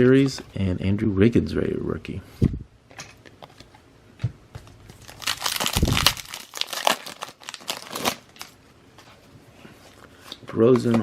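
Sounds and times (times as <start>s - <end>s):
foil wrapper crinkling: 4.9s - 8.6s.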